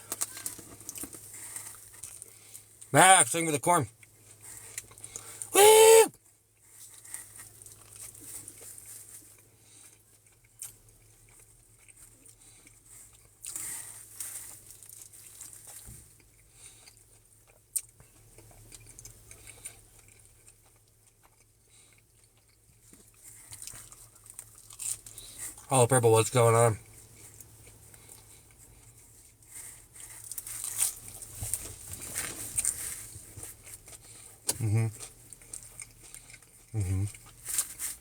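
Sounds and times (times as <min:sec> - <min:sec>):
chewing and biting pizza: 0:00.0 - 0:38.0
mouth and handling noises: 0:05.6 - 0:06.1.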